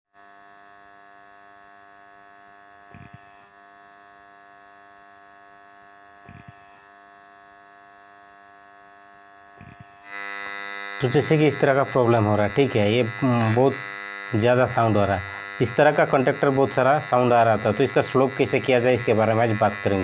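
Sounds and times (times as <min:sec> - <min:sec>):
contactor buzzing with mains hum: 0:00.2 - 0:20.0.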